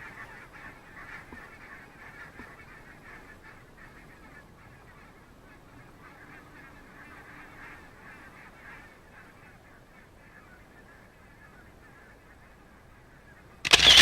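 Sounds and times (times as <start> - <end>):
flock of birds calling: 13.7 - 14.0.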